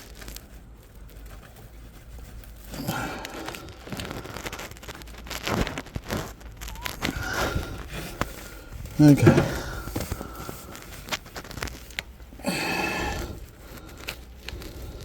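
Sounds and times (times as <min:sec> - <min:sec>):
hose rustling and crinkling: 0:00.0 - 0:15.0.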